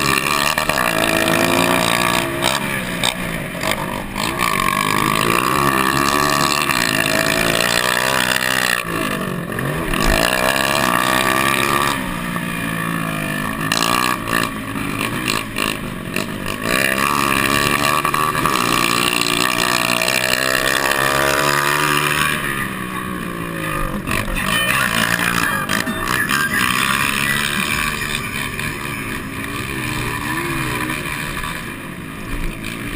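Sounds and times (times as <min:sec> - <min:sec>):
motorcycle engines revving: 0:00.0 - 0:32.9.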